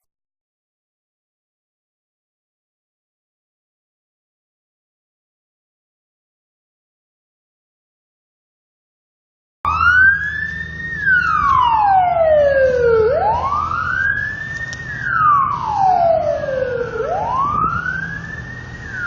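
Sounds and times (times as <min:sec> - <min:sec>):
emergency vehicle siren wailing: 0:09.7 - 0:19.0
low vehicle rumble: 0:09.7 - 0:19.0.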